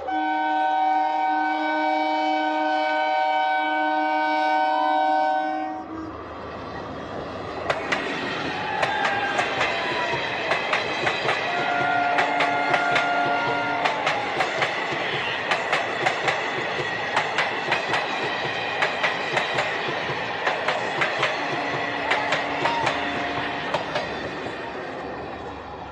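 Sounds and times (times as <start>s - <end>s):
train wheels clicking over rail joints: 7.2s - 25.7s.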